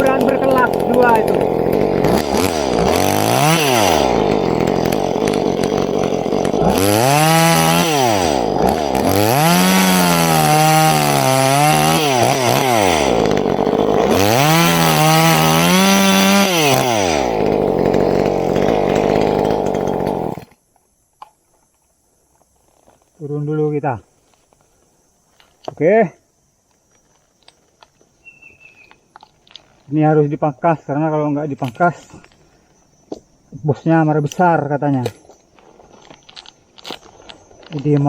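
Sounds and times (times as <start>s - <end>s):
chainsaw revving: 0.0s - 20.5s.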